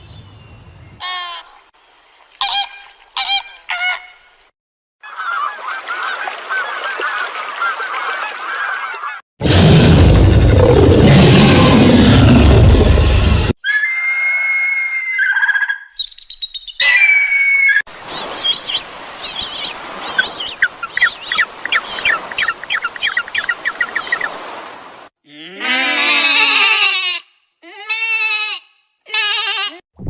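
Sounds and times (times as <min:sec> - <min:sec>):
loud noisy sound: 0:09.4 - 0:13.6
whistled bird calls: 0:13.6 - 0:24.4
rapid bird chirps: 0:15.3 - 0:16.8, 0:18.1 - 0:24.4.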